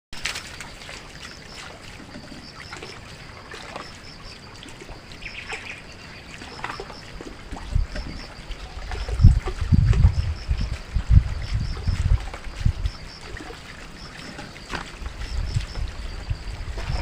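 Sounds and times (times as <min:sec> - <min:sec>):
scattered calls and clicks: 0:00.2 - 0:17.0
low rumbling thumps: 0:07.6 - 0:13.2.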